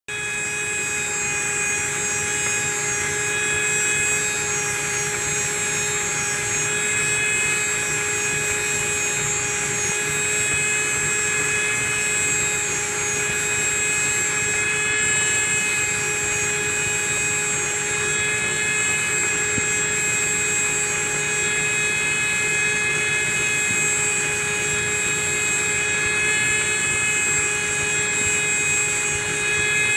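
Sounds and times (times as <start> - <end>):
grinder whining: 0.1 - 29.9.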